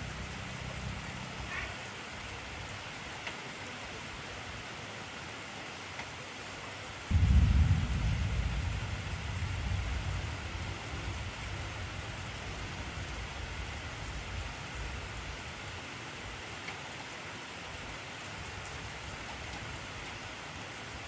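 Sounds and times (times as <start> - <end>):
heavy rain: 0.0 - 21.0
low thunder clap: 7.1 - 15.0.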